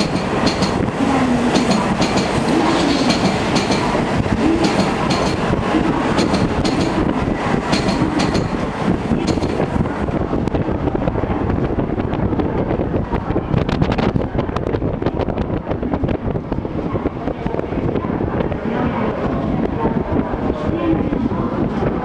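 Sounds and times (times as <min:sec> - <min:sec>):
train cars rumbling past: 0:00.0 - 0:22.0
wind buffeting microphone: 0:00.0 - 0:22.0.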